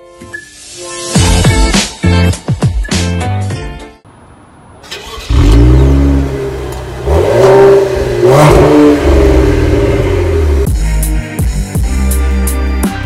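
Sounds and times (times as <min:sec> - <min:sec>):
car engine starting and revving: 0:04.8 - 0:10.7.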